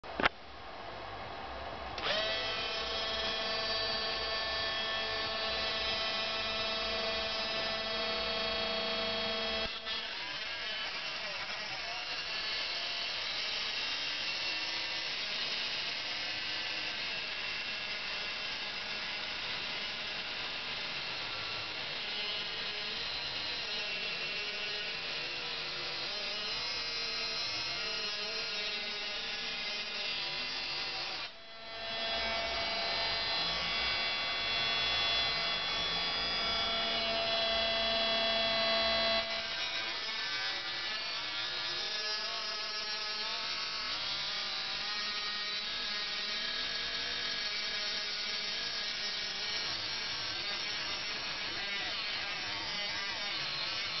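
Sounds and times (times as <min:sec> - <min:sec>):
motor spinning cut-off disc whine: 0:02.0 - 0:42.6.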